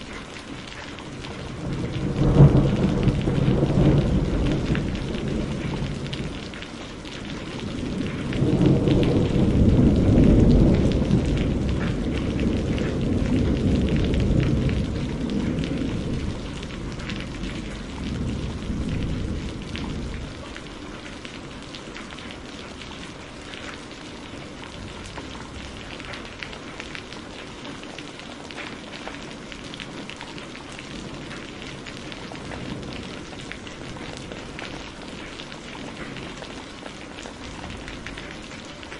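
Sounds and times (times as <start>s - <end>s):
steady rain: 0.0s - 38.9s
thunder rolling: 1.1s - 20.8s.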